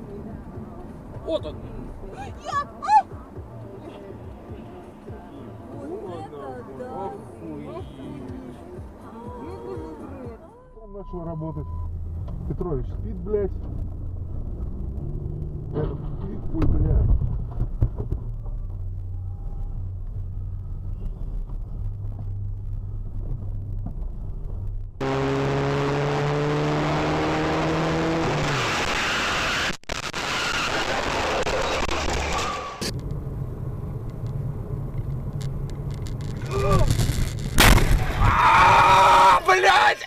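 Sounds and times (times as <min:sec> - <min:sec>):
car engine and road noise: 0:00.0 - 0:40.0
pitched engine drone: 0:25.0 - 0:33.4.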